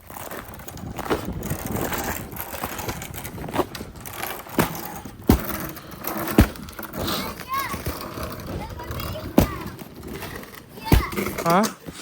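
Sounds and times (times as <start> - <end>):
footsteps crunching through icy snow: 0.0 - 8.2.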